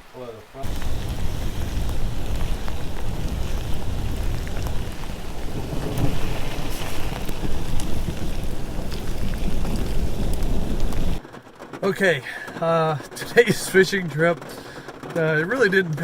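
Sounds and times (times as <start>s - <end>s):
heavy rain: 0.0s - 13.8s
low thunder rumble: 0.6s - 11.2s.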